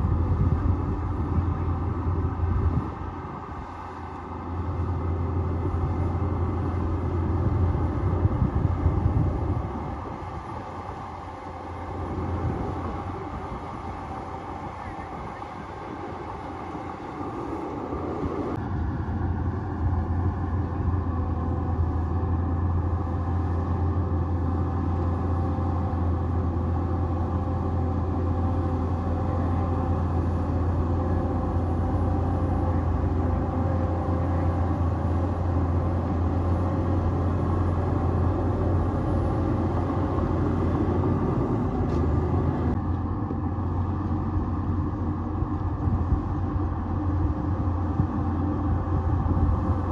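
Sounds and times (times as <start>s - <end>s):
bulldozer diesel engine under load: 0.0s - 49.9s.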